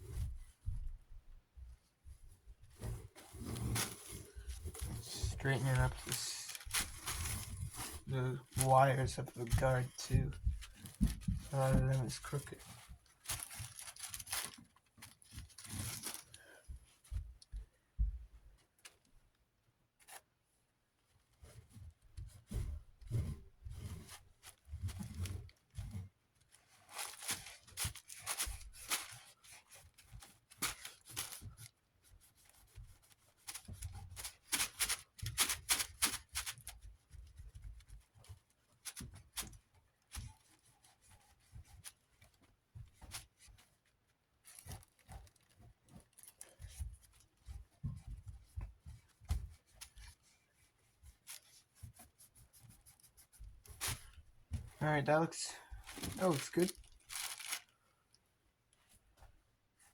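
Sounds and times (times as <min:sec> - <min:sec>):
soft bumps of fan guard: 0:45.9 - 0:50.1.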